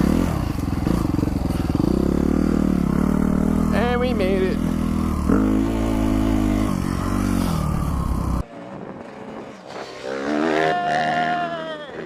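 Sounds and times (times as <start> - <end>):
dirt bike engine running: 0.0 - 8.5.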